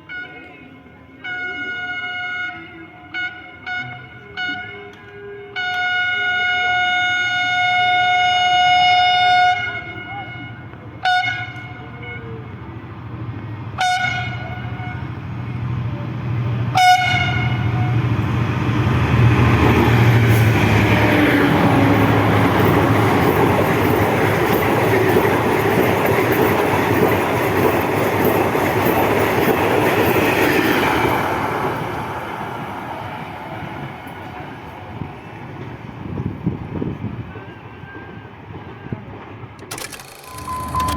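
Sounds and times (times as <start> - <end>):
locomotive horn blasts: 0.0 - 12.6, 13.8 - 15.3, 16.6 - 18.2
train running noise: 0.0 - 40.9.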